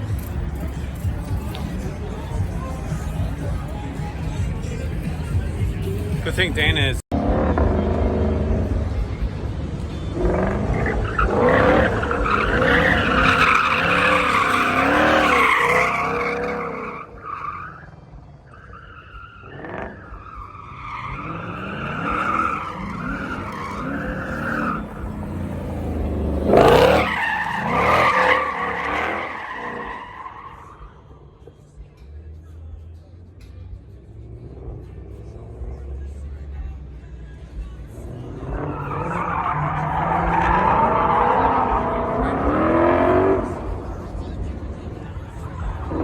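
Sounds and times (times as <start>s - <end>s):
car tyres squealing: 10.0s - 31.5s, 38.0s - 46.0s.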